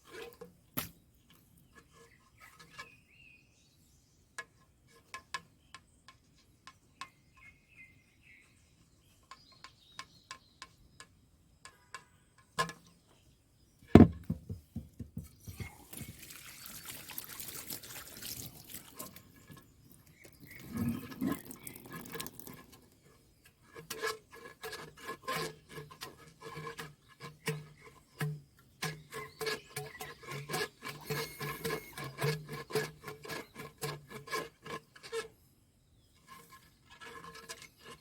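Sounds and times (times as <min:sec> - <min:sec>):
water splashing and pouring: 0:15.5 - 0:23.0.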